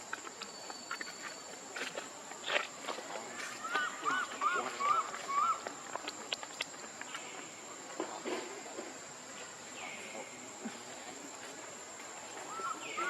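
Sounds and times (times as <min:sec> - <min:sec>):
faint animal calls: 0:03.4 - 0:05.8, 0:12.5 - 0:13.0.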